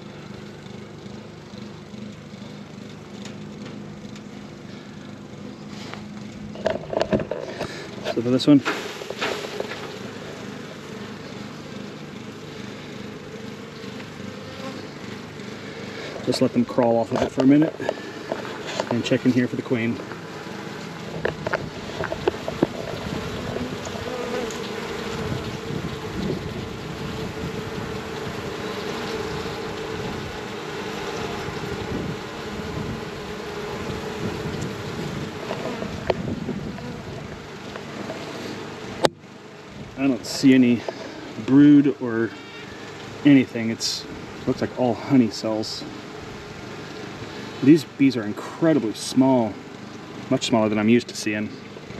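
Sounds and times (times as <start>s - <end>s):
honeybees buzzing: 0.0s - 51.9s
handling rustle: 5.7s - 10.6s, 13.8s - 25.3s
wind noise on microphone: 21.2s - 24.0s, 25.1s - 28.5s, 29.2s - 30.5s, 31.3s - 37.4s.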